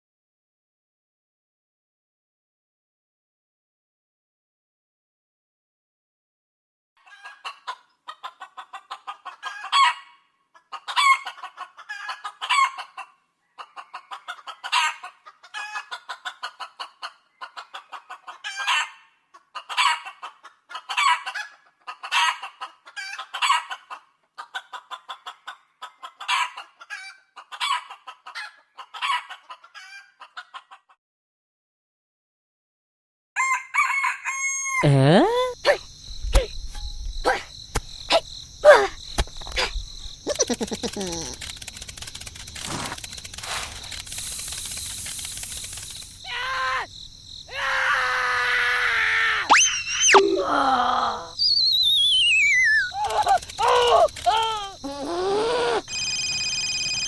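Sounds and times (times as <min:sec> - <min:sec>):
chicken clucking and cackling: 0:07.0 - 0:31.0, 0:33.4 - 0:34.9, 0:39.6 - 0:41.5, 0:52.6 - 0:55.9.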